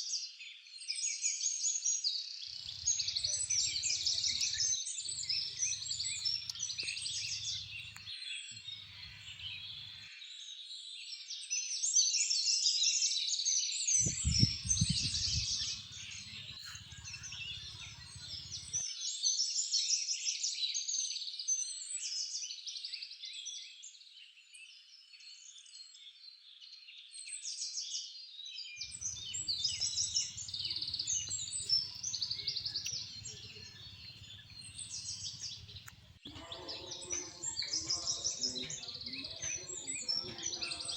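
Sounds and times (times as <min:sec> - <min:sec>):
small birds chirping and twittering: 0:02.5 - 0:11.1, 0:14.0 - 0:19.1, 0:28.2 - 0:40.9.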